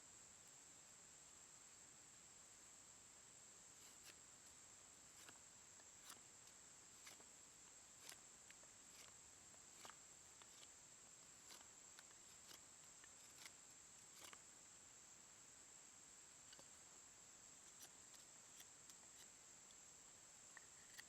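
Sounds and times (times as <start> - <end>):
steady hiss: 0.0 - 21.0
faint small clicks and ticks: 3.8 - 14.5, 16.4 - 16.8, 17.6 - 19.9.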